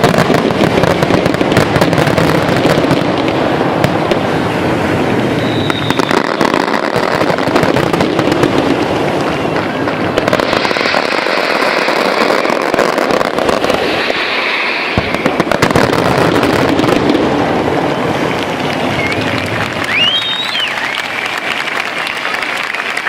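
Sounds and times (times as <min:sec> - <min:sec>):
fireworks crackling: 0:00.0 - 0:23.0
thin rising firework whistle: 0:04.3 - 0:07.7, 0:09.2 - 0:22.6.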